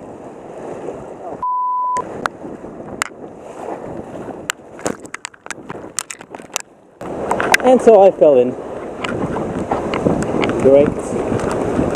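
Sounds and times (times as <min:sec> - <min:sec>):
rushing river water: 0:00.0 - 0:01.4, 0:02.0 - 0:11.9
censor bleep tone: 0:01.4 - 0:02.0
sharp knocks and splashes: 0:02.0 - 0:08.1.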